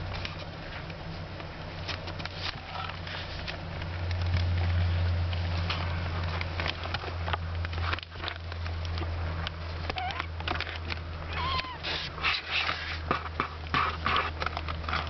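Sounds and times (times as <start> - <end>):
kittens scampering and scuffling: 0.0 - 15.0
steady low hum: 0.0 - 15.0
faint squeak: 11.3 - 12.7.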